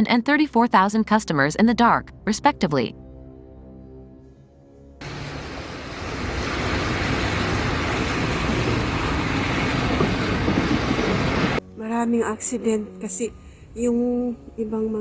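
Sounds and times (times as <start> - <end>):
road traffic rushing: 5.0 - 11.6.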